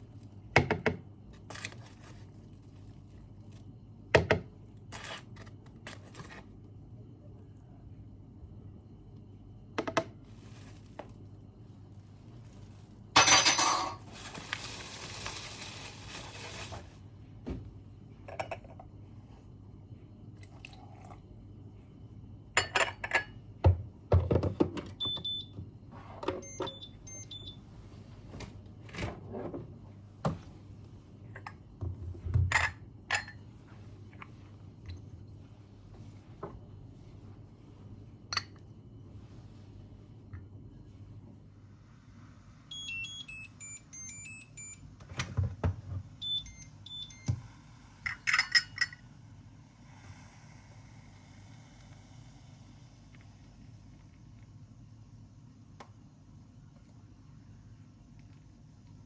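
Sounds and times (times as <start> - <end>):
dishes clinking and knocking: 13.2 - 14.1
hiss: 49.6 - 54.0.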